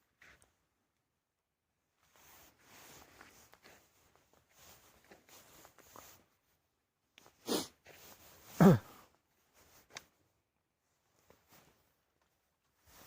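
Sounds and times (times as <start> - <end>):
person sneezing: 7.4 - 7.7, 8.5 - 9.0.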